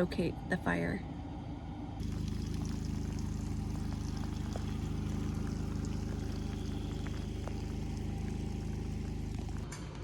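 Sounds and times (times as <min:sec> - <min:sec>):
engine running with even pulse: 0:01.1 - 0:09.9.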